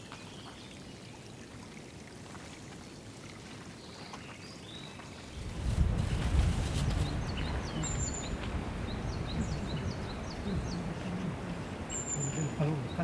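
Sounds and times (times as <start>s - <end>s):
rushing water: 0.0s - 13.0s
songbirds chirping: 3.7s - 13.0s.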